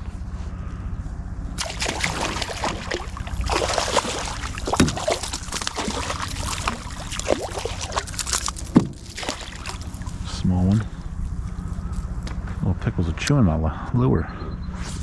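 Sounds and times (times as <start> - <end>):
water splashing and trickling: 1.6 - 11.3.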